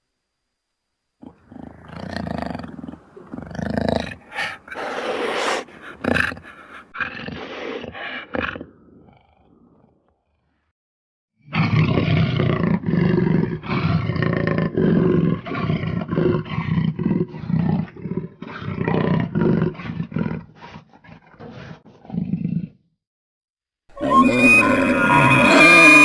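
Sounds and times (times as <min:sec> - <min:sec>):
monster-like roaring and growling: 0:24.0 - 0:26.0.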